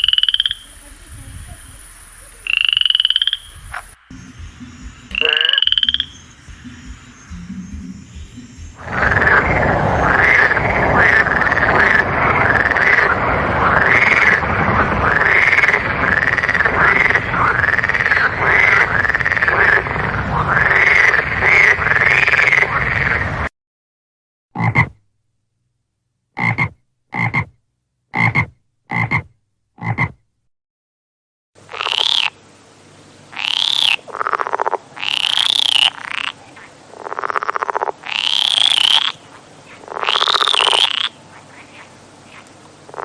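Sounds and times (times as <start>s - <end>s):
single short frog croaks: 0.0s - 0.7s, 2.4s - 3.9s, 5.1s - 6.1s, 28.2s - 30.2s, 31.7s - 32.3s, 33.4s - 43.0s
frogs croaking in chorus: 0.0s - 4.0s, 4.7s - 23.3s, 31.6s - 32.4s, 33.3s - 43.0s.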